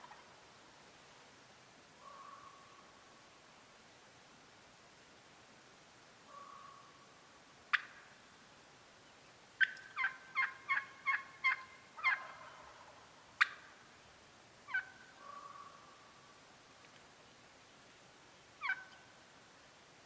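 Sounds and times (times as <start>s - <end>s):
turkey clucks: 0.0s - 0.4s, 7.7s - 8.2s, 9.6s - 13.8s, 14.7s - 15.7s, 18.6s - 19.0s
turkey yelping: 0.0s - 0.4s, 9.6s - 13.6s, 14.7s - 15.7s, 18.6s - 19.0s.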